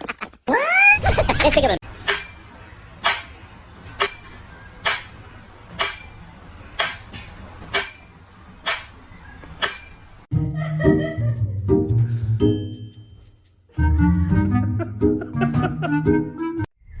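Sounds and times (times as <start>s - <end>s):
sharp ringing clicks: 1.9s - 10.3s.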